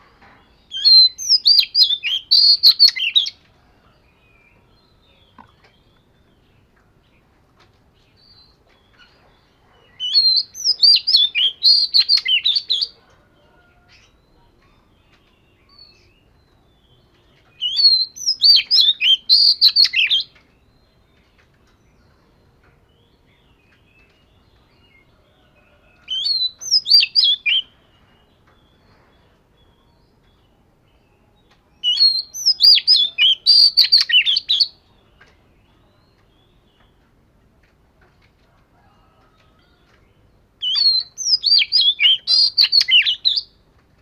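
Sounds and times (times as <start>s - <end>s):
bird singing whistled phrases: 0.8s - 3.4s, 10.0s - 12.9s, 17.6s - 20.3s, 26.1s - 27.8s, 31.8s - 34.8s, 40.6s - 43.5s.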